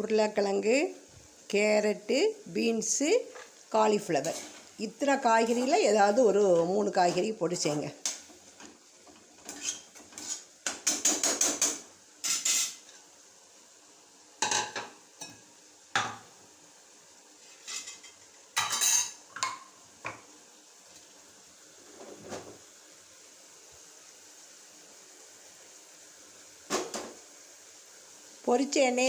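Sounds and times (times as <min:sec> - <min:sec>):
metal utensils clanking on pots: 0:04.2 - 0:04.8, 0:05.4 - 0:12.8, 0:14.4 - 0:15.4, 0:17.7 - 0:19.7.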